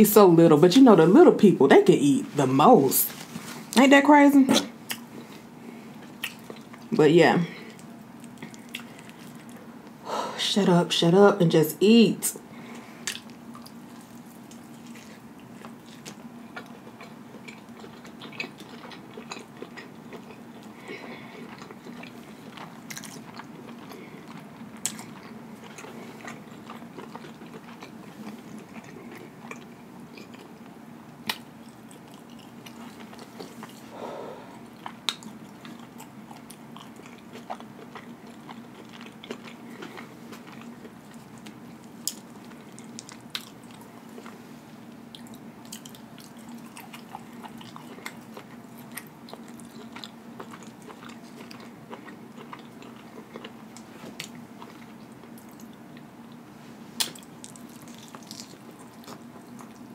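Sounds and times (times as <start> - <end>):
faint low hum: 0.0 - 59.9
wet chewing with lip smacks: 6.0 - 6.9, 7.7 - 9.6, 13.0 - 33.9, 34.5 - 44.4, 45.1 - 56.4, 57.0 - 59.9.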